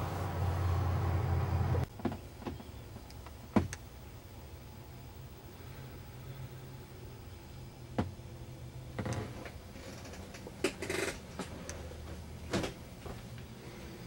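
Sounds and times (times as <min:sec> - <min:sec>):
diesel engine idling: 0:00.0 - 0:01.9.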